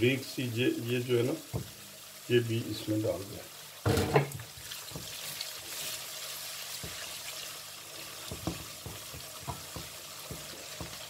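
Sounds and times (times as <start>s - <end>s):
food sizzling in oil: 0.0s - 11.0s
spoon knocking against pan: 8.2s - 11.0s.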